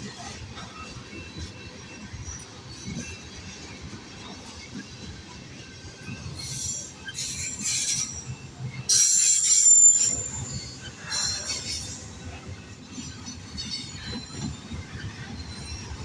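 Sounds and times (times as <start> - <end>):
low train rumble: 0.0 - 16.0
train wheels squealing on rails: 0.0 - 16.0.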